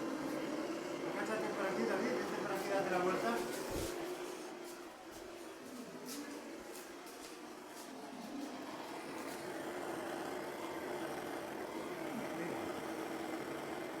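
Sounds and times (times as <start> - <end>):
blowtorch flame hissing: 0.0 - 14.0.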